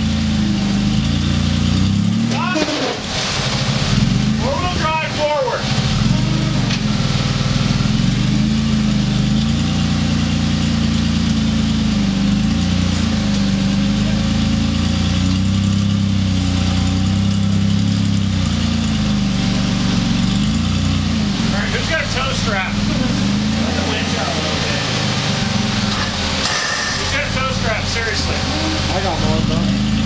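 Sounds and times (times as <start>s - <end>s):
engine running at low revs: 0.0s - 30.0s.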